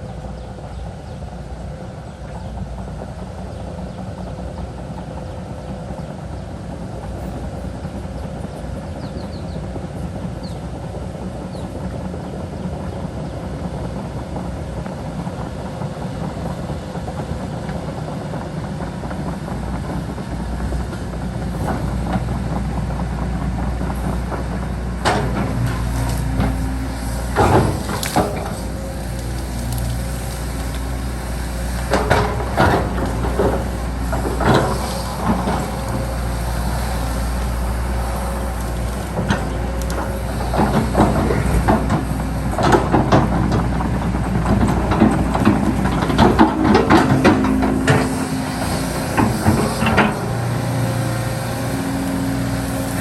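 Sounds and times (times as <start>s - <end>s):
diesel machinery engine rumble: 0.0s - 53.0s
metallic clanks and knocks: 25.0s - 31.0s, 31.6s - 36.3s, 44.4s - 50.3s.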